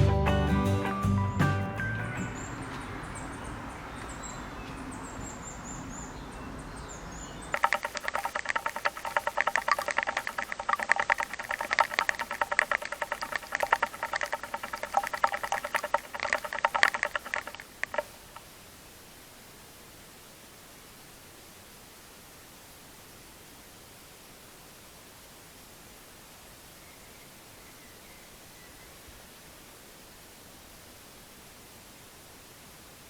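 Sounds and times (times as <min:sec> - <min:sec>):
music: 0:00.0 - 0:02.6
rapid water pattering: 0:07.5 - 0:18.5.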